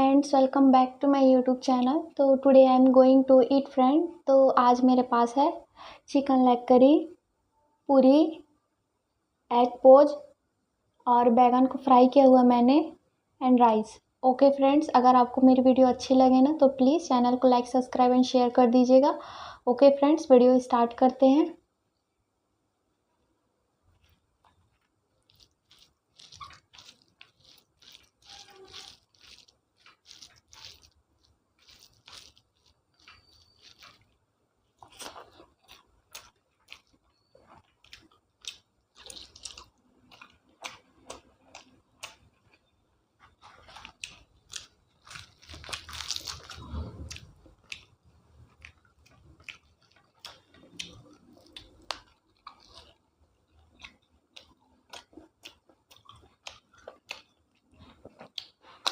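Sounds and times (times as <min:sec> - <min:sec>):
person chewing crunchy food: 0:23.9 - 0:58.9
wet mouth clicks: 0:25.2 - 0:34.1, 0:58.1 - 0:58.9.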